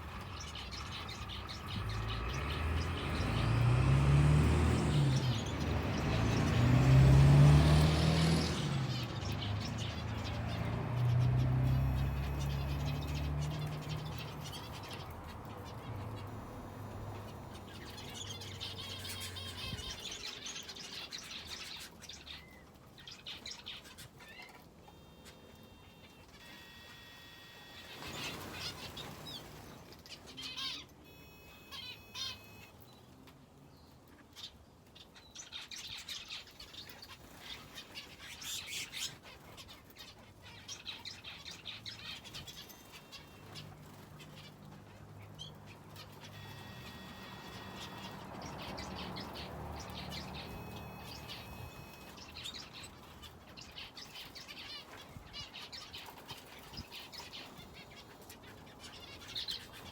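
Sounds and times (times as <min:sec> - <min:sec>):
small birds chirping: 0:00.0 - 0:59.9
wings fluttering: 0:26.1 - 0:30.7.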